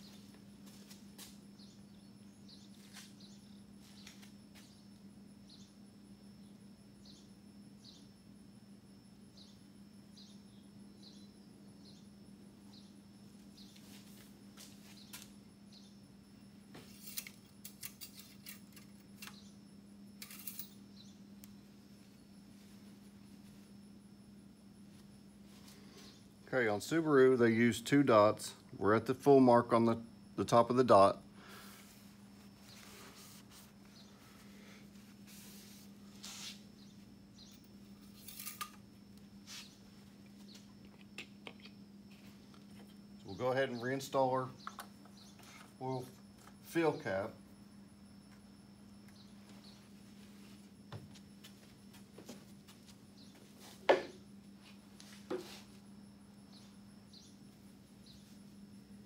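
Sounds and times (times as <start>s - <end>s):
steady low hum: 0.0s - 59.0s
soft rustles and scrapes: 13.7s - 15.2s, 31.7s - 38.6s, 39.4s - 40.6s, 49.4s - 53.9s, 54.5s - 55.9s
small parts clicking and scraping: 16.9s - 19.4s, 20.2s - 20.8s, 37.5s - 38.8s.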